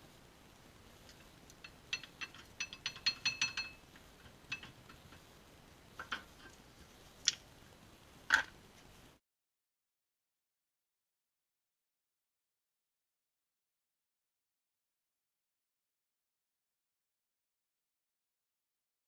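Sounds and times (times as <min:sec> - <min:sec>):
metal tools clinking: 0:01.6 - 0:03.9.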